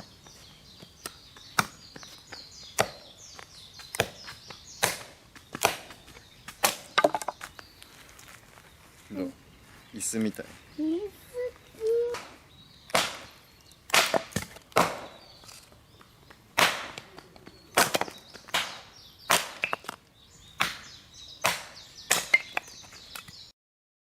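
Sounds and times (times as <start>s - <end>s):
axe chopping wood: 1.5s - 1.8s, 2.7s - 3.1s, 3.8s - 7.5s, 12.9s - 13.3s, 13.9s - 15.2s, 16.6s - 20.0s, 20.6s - 23.4s.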